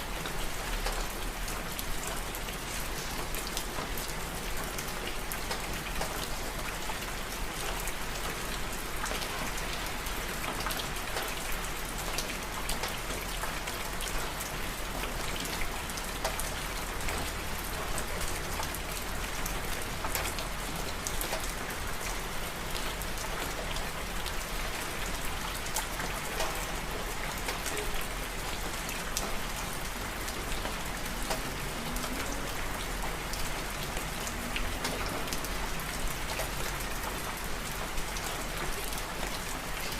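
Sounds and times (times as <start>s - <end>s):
steady rain falling: 0.0s - 39.9s
raindrop ticks: 25.6s - 26.8s, 30.3s - 32.4s.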